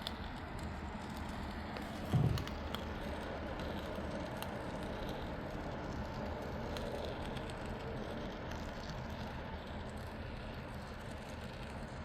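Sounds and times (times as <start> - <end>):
steady background noise: 0.2 - 12.0
short low thump: 2.1 - 2.5.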